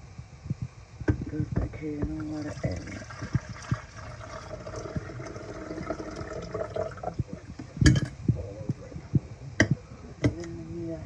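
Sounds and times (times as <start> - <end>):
water pouring into coffee maker: 2.1 - 8.1.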